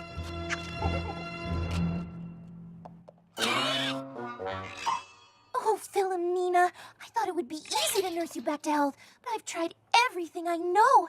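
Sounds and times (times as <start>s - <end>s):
background music: 0.0s - 5.7s
cartoon bird raspy squawk: 3.4s - 5.2s.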